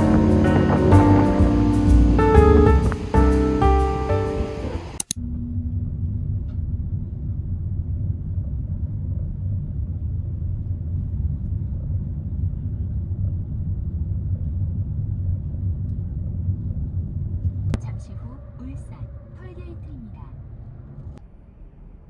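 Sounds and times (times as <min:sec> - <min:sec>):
car cabin road noise: 0:00.0 - 0:05.0.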